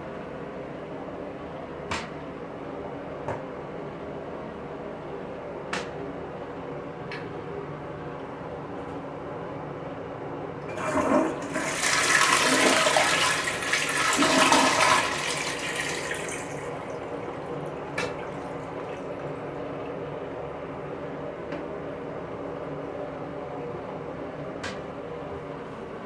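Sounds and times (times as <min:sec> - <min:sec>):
toilet flushing: 0:10.6 - 0:20.9.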